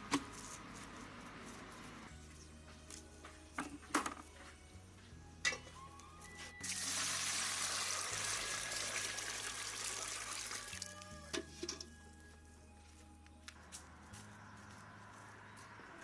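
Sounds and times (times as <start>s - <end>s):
quiet background music: 0.0s - 16.0s
water pouring: 6.6s - 10.9s.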